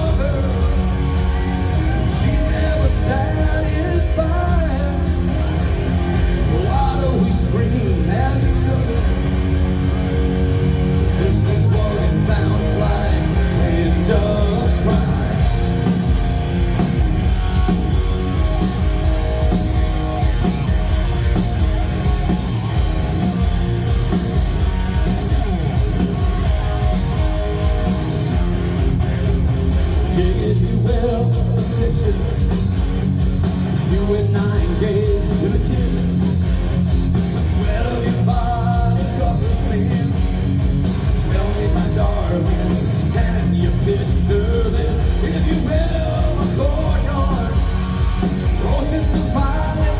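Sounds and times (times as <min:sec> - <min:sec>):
vocals: 0:00.0 - 0:09.7, 0:11.0 - 0:16.0, 0:30.0 - 0:49.9
live rock band playing: 0:00.0 - 0:49.9.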